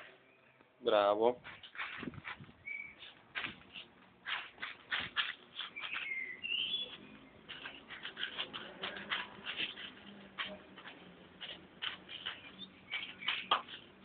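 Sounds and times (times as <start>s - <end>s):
dog paws scratching ground: 1.4s - 14.0s.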